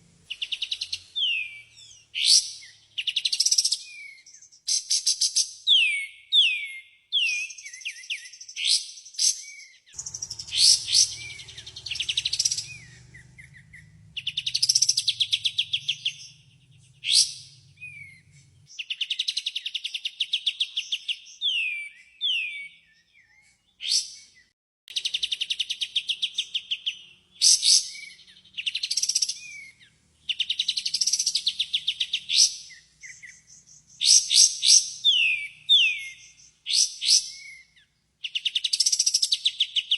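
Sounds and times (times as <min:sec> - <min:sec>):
songbird trills and whistles: 0:00.3 - 0:39.9
faint low hum: 0:10.0 - 0:18.7.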